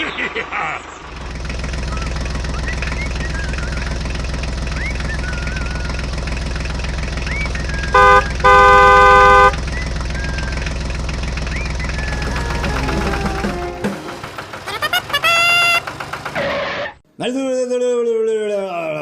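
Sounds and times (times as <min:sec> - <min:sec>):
tractor engine running: 0:00.8 - 0:16.8
vehicle horn honking: 0:07.9 - 0:09.7, 0:12.8 - 0:15.9.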